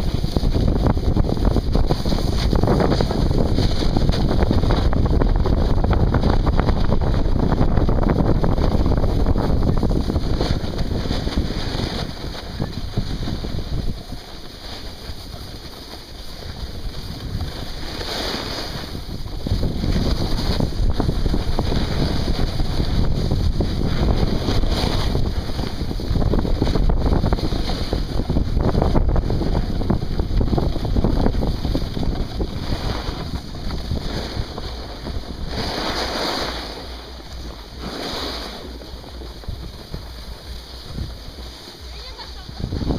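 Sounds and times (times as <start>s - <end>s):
wind rushing over microphone: 0.0s - 42.9s.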